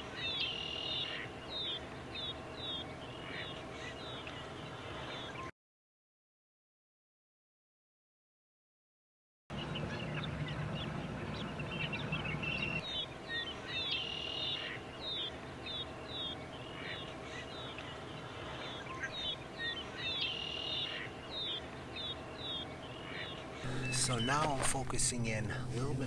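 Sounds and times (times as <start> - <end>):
low hum: 9.5 - 14.0, 21.0 - 26.0.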